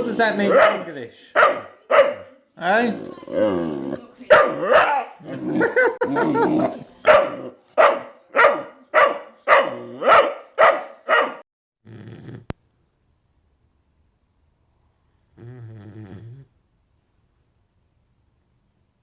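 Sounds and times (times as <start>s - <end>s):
puppy barking: 0.3s - 2.4s, 4.3s - 11.5s.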